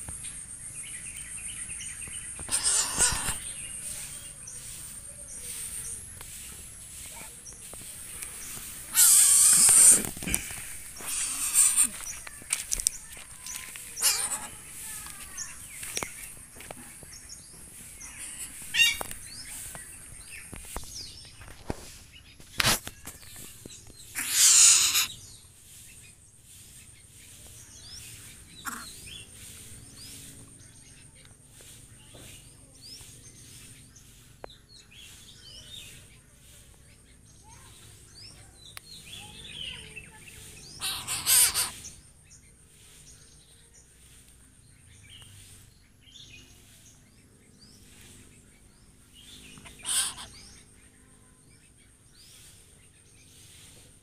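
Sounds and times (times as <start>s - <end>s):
birds chirping: 0.0s - 54.0s
harsh rasping bursts: 8.7s - 12.0s, 40.8s - 41.8s.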